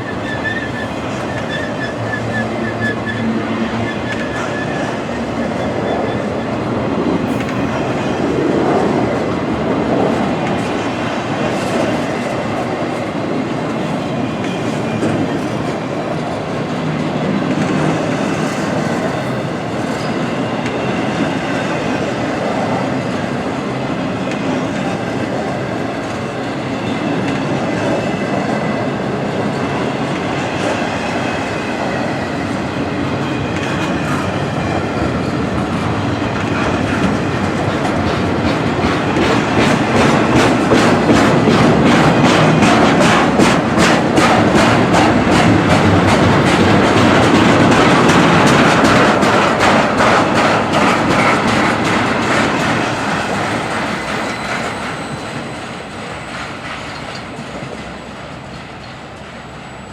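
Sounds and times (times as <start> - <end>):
high wheel squeal: 0.0 - 6.6, 51.4 - 57.4
train wheels clicking over rail joints: 7.0 - 23.4, 29.4 - 59.6.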